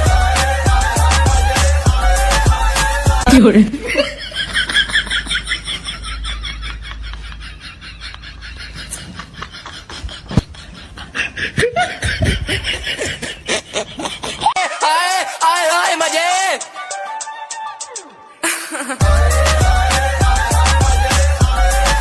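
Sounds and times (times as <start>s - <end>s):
high-pitched laughter: 3.3s - 15.2s, 18.4s - 19.2s.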